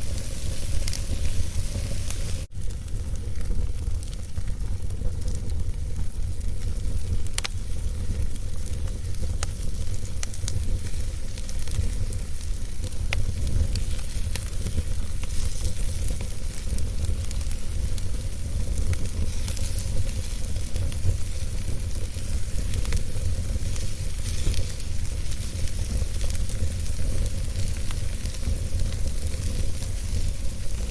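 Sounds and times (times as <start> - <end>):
burning wood crackling: 0.0 - 30.9
fire flames rumbling and hissing: 0.0 - 30.9.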